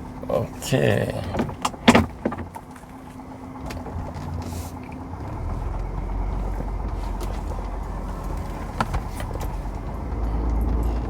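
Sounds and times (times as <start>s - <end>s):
car rumble from inside cabin: 0.0s - 11.0s
sharp clicks and knocks: 1.2s - 2.9s.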